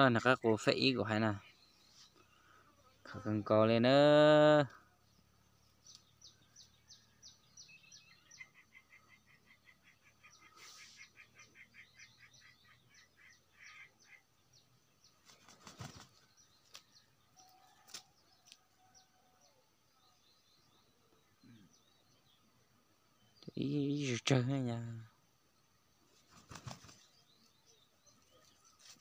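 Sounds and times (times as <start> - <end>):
small birds chirping: 0.0 - 29.0
bird trill: 5.2 - 14.6.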